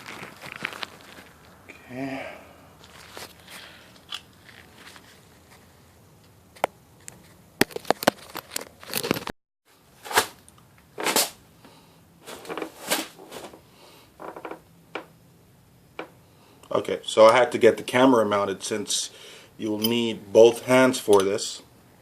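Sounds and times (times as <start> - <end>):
rustling and scraping: 0.0 - 1.6, 2.8 - 6.0, 7.0 - 9.3, 9.9 - 10.4, 11.0 - 11.4, 12.2 - 15.1.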